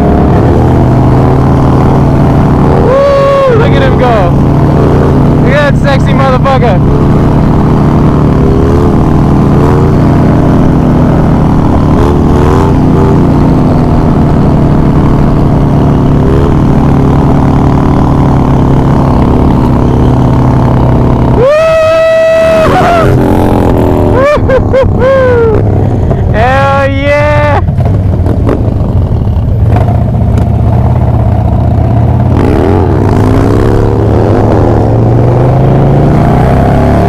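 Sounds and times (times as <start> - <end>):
motorcycle engine running: 0.0 - 37.0
high-pitched whoop: 2.8 - 3.6, 21.3 - 23.2, 25.0 - 25.6.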